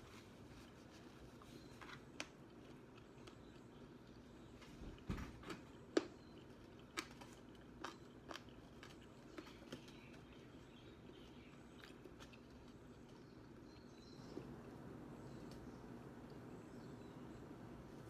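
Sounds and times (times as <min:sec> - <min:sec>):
person chewing crunchy food: 0:00.2 - 0:14.2.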